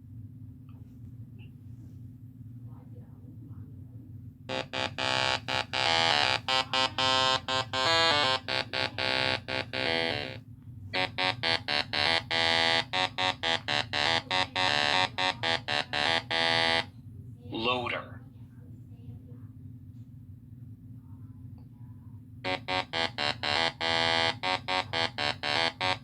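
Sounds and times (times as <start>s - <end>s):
buzzy electronic tone pulsing: 4.5s - 10.4s, 11.0s - 16.9s, 22.5s - 26.0s.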